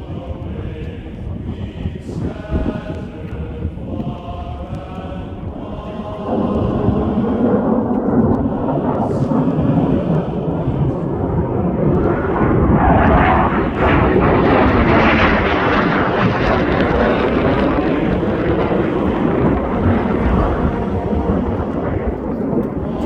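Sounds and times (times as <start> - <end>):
jets flying past roaring: 5.4 - 23.0.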